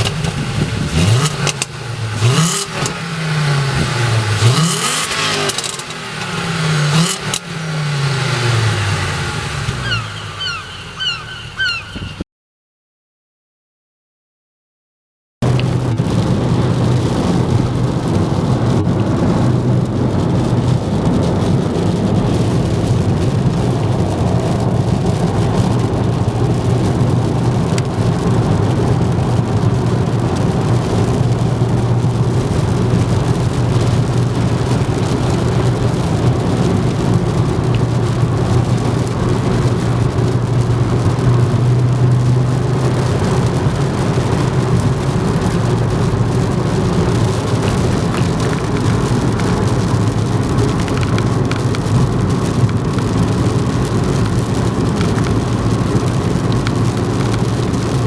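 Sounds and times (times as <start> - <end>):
car engine running: 0.0 - 12.2, 15.4 - 58.0
rushing noise: 0.0 - 12.2.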